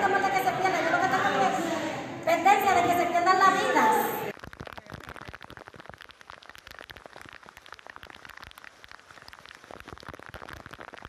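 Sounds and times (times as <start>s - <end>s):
heavy rain on standing water: 4.3s - 11.0s.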